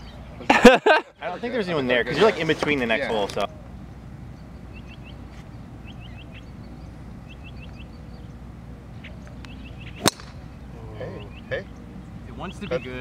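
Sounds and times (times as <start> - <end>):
low outdoor rumble: 0.0 - 13.0
small bird chirping: 3.8 - 13.0.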